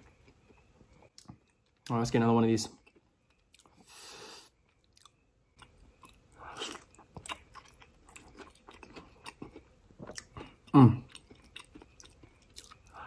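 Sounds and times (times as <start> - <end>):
close biting and chewing: 4.9 - 13.0.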